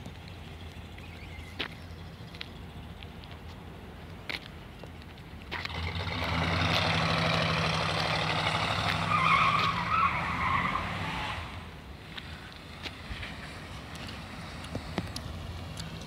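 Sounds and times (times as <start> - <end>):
car engine pulling away: 5.5 - 16.0.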